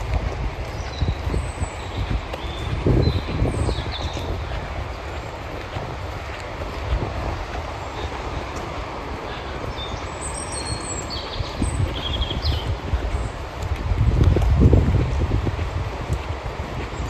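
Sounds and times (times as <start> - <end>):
gusty wind: 0.0 - 17.0
rain: 0.0 - 17.0
small bird chirping: 0.7 - 4.5, 9.7 - 13.4.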